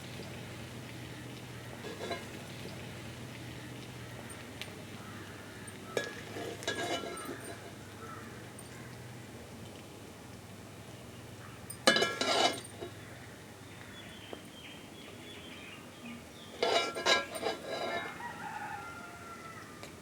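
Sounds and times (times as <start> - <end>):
faint steady background noise: 0.0 - 20.0
chicken calling: 17.9 - 19.9.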